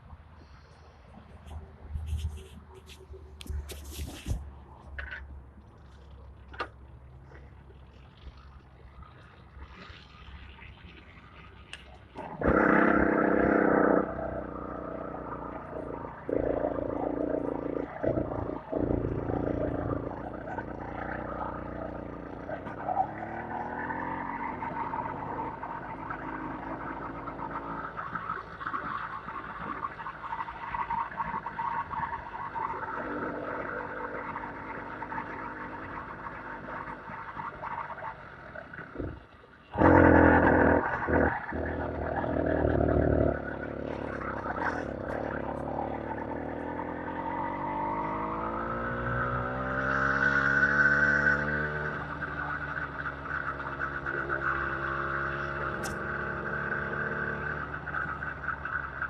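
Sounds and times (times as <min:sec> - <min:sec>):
vehicle engine revving: 0:12.2 - 0:29.7, 0:38.2 - 0:59.0.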